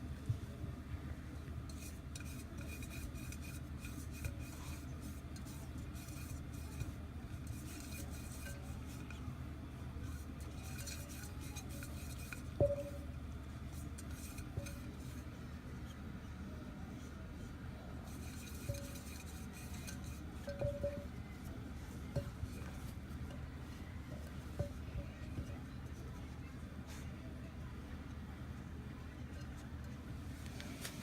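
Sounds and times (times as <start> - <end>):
faint clinks: 18.2 - 21.4.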